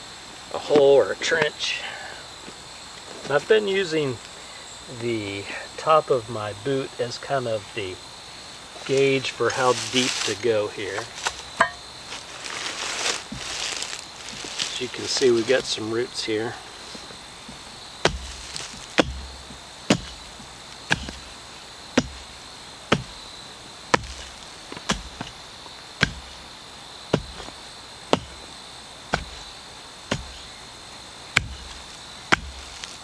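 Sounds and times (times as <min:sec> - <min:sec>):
digging tool chopping roots and soil: 0:12.5 - 0:33.0.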